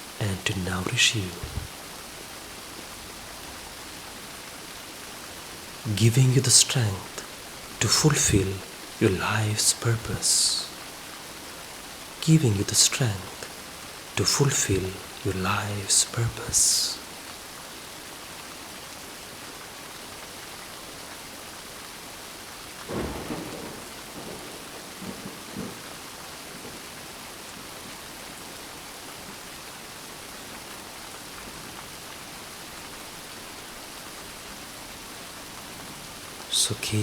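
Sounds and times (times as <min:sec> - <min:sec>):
steady rain: 0:00.0 - 0:37.0
thunder rumbling: 0:22.9 - 0:26.8.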